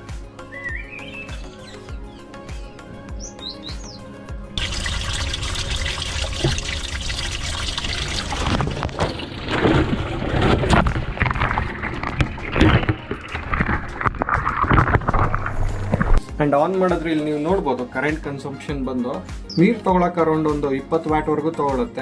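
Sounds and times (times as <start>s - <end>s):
washing machine water rushing in: 4.6s - 16.2s.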